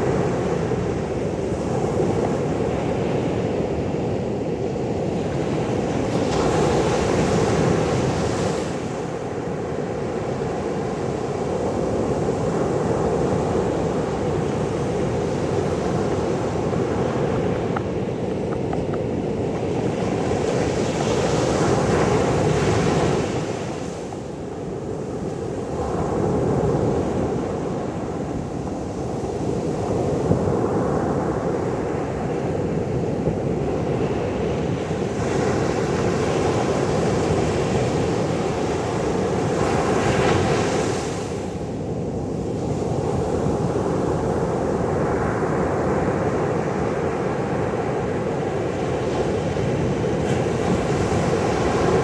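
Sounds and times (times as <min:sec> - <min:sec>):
wind rumbling on microphone: 0:00.0 - 0:52.0
sea waves breaking: 0:13.1 - 0:24.1.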